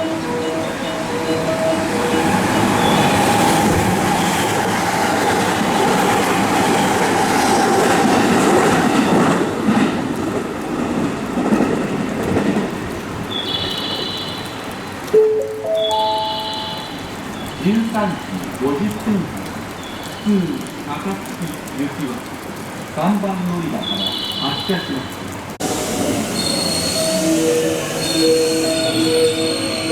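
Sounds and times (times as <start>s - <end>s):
train wheels rolling on rail: 0.0s - 15.2s, 16.0s - 29.9s
high electronic chime: 15.2s - 17.1s.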